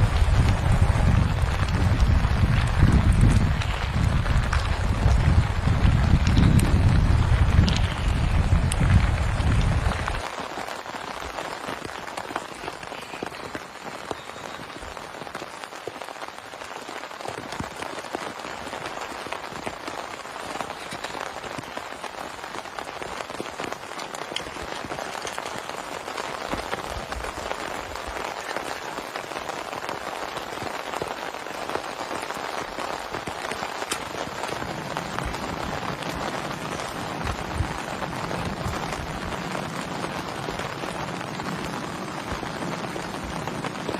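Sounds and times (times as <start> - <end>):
wind buffeting microphone: 0.0 - 10.3, 33.6 - 43.9
heavy rain falling: 0.0 - 43.9.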